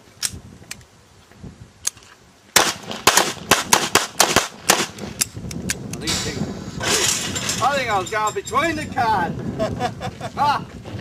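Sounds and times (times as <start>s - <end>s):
rapid handgun fire: 2.6s - 5.0s.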